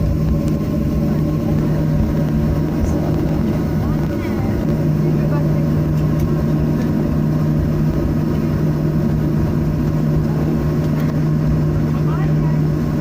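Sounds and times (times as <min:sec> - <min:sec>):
airplane cabin rumble and engine hum: 0:00.0 - 0:13.0.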